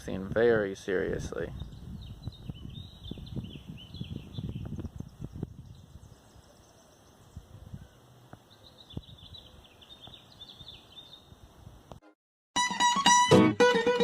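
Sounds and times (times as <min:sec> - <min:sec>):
small bird chirping: 0:01.6 - 0:11.3
faint outdoor ambience: 0:04.7 - 0:12.0.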